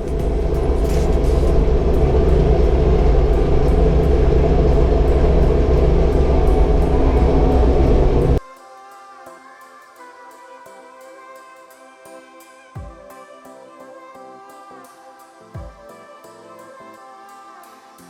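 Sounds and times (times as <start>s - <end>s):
vehicle engine rumbling: 0.0s - 8.4s.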